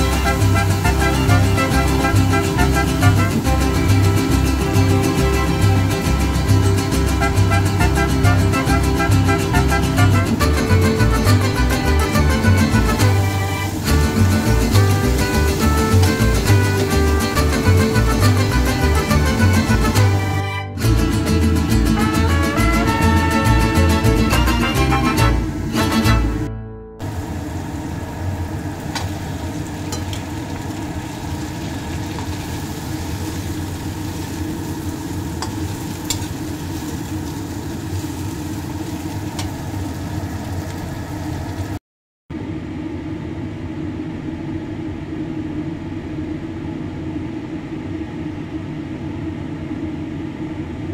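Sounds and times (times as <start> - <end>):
shrimp sizzling in a wok: 13.0 - 16.8, 27.1 - 41.8.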